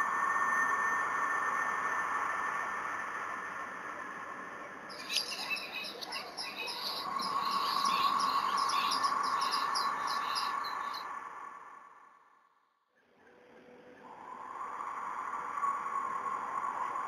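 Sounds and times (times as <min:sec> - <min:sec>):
birds chirping high notes: 0:04.9 - 0:11.0
steady humming drone: 0:04.9 - 0:11.0.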